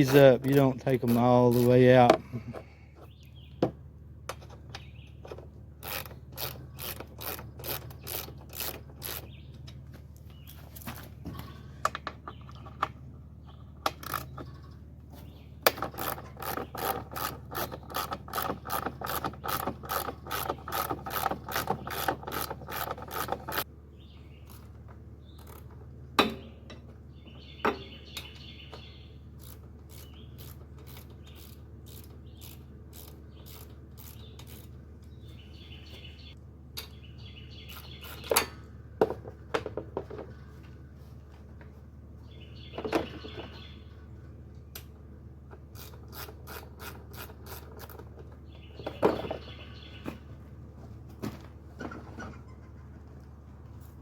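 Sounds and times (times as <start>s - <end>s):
ratchet wrench clicking: 5.8s - 9.3s, 15.8s - 23.6s, 29.4s - 34.7s.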